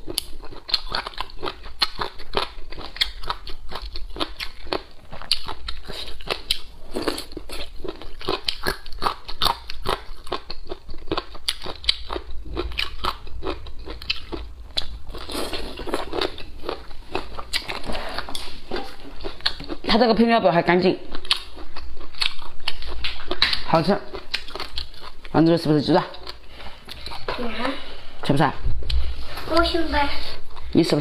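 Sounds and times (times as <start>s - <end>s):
crunchy chewing: 0.0s - 20.0s, 21.1s - 25.4s.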